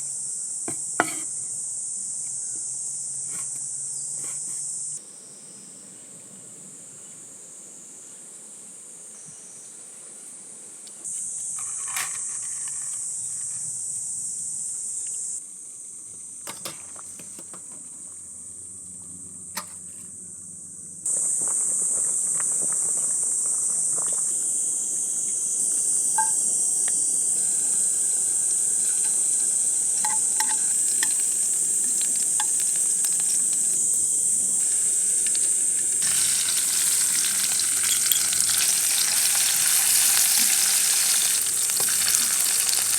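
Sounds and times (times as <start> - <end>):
insect chirring: 11.1 - 16.4, 20.4 - 42.9
food sizzling in a frying pan: 25.6 - 42.9.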